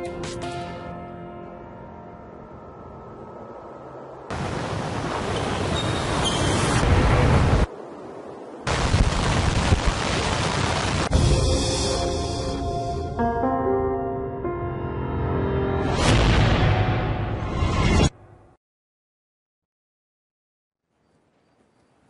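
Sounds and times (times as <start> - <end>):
music chord: 11.1 - 17.2.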